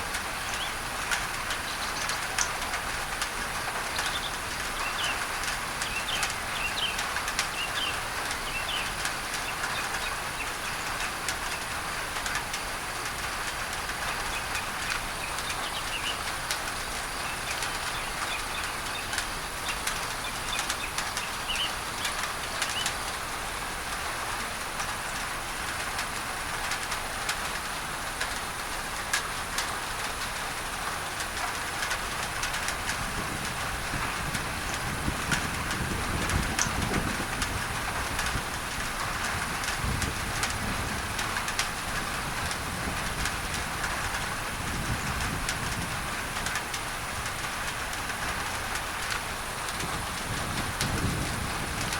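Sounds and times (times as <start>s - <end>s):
rain on a tin roof: 0.0s - 51.9s
birds chirping: 3.8s - 11.8s, 14.2s - 23.1s.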